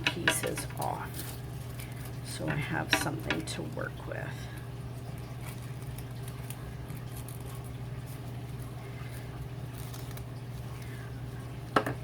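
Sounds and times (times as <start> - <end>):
scissors snipping foil: 5.2 - 8.7, 9.7 - 10.3.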